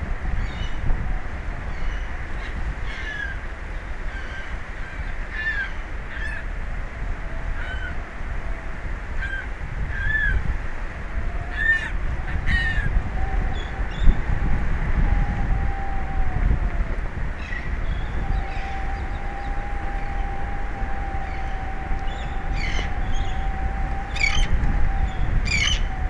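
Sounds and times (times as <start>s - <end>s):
wind rumble on microphone: 0.0s - 26.0s
birds giving harsh calls: 21.2s - 25.9s.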